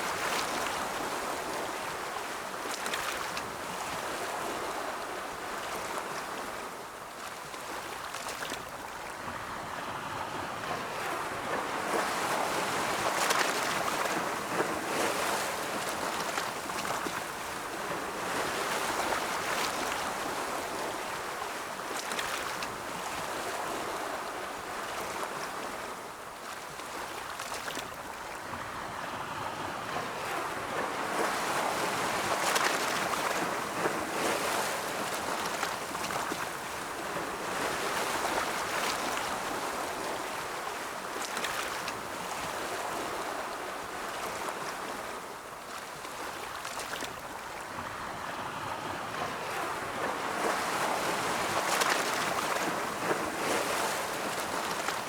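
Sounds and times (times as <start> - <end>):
ocean waves breaking: 28.4 - 55.0.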